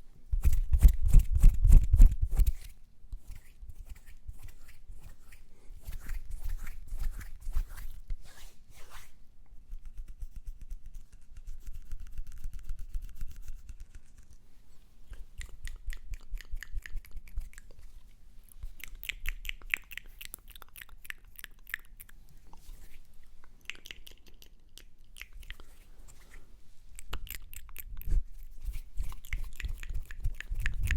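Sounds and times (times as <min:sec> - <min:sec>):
mouth clicks: 0:15.1 - 0:17.7, 0:18.7 - 0:22.1, 0:23.6 - 0:25.6.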